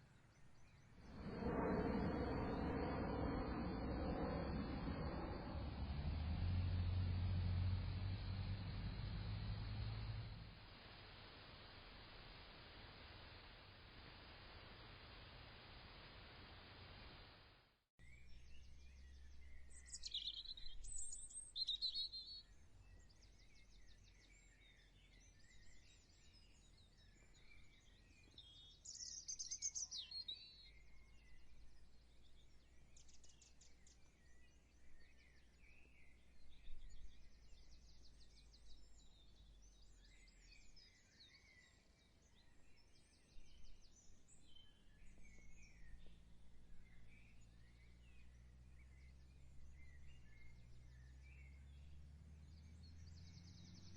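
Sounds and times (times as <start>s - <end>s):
low steady hum: 0.6s - 17.5s
songbirds chirping and trilling: 18.0s - 53.9s.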